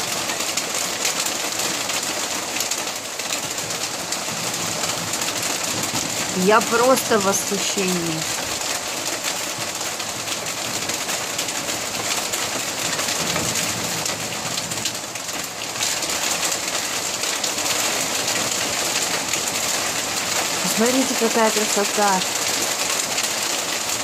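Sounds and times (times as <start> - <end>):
heavy rain and hail: 0.0 - 24.0.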